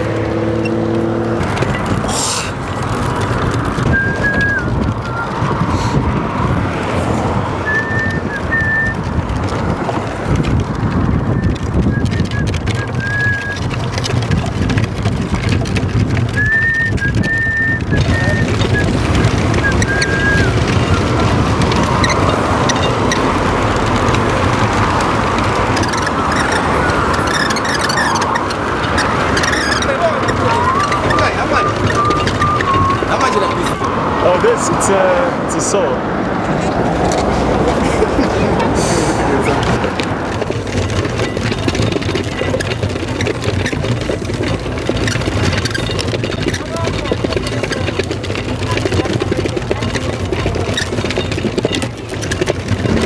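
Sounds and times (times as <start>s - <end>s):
clatter: 0.0s - 34.6s, 36.3s - 53.0s
light clicks and rattles: 0.0s - 35.1s, 36.3s - 53.0s
rumbling road noise: 0.0s - 53.0s
high-pitched squeaks: 16.4s - 44.1s.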